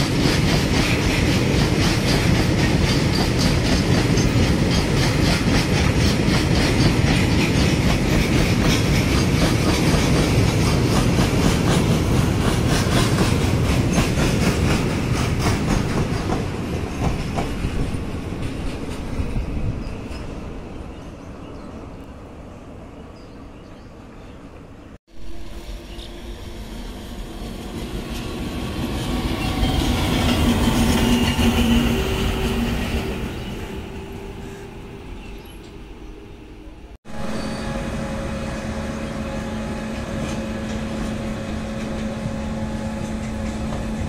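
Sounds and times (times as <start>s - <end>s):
train wheels clickety-clack: 0.0s - 20.4s, 27.9s - 33.4s, 39.5s - 44.0s.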